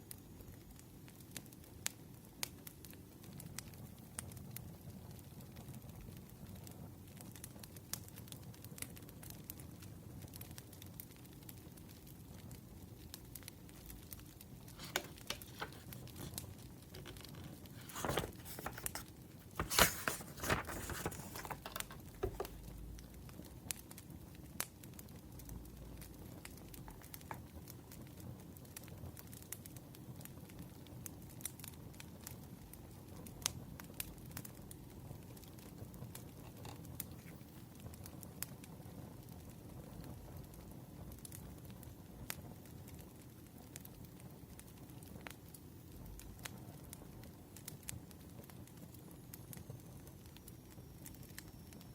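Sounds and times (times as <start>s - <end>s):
firewood crackling: 10.2s - 24.0s.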